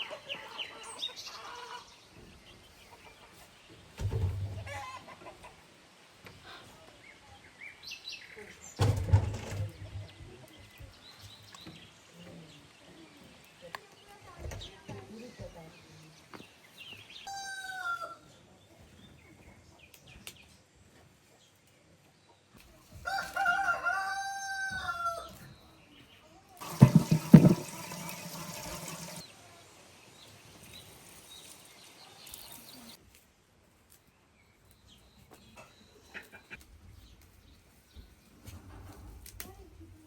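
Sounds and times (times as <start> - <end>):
rooster crowing: 23.0 - 25.3.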